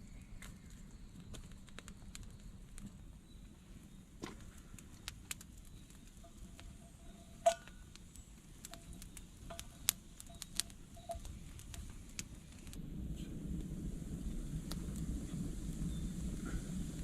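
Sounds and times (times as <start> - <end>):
sharp clicks and light knocks: 0.4 - 3.0, 4.2 - 12.8.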